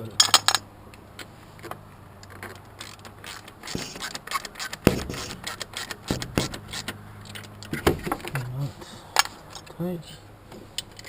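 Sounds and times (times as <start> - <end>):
sharp metal knocks: 4.7 - 7.0.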